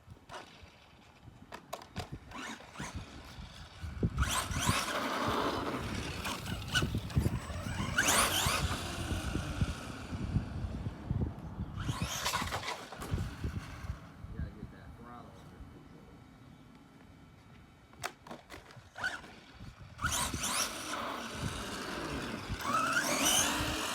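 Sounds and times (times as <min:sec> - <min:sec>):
electric motor whining: 0:01.8 - 0:14.3, 0:18.0 - 0:23.9.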